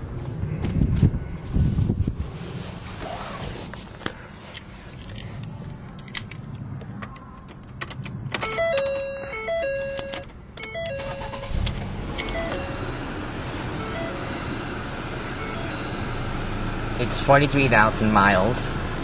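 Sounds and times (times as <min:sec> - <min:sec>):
car engine starting and idling: 0:04.4 - 0:19.0
car keys jangling: 0:05.9 - 0:12.8
electronic tone tune: 0:08.4 - 0:13.0, 0:13.8 - 0:14.5.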